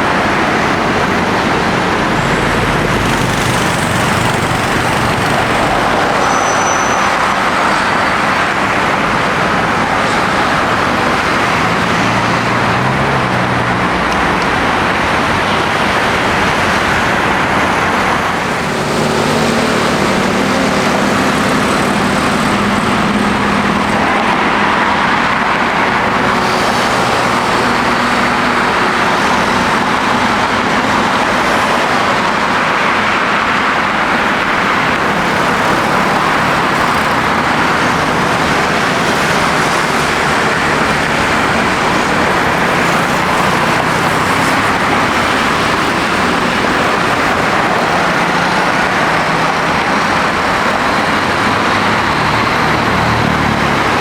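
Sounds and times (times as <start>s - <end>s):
jet engines rushing: 0.0s - 54.0s.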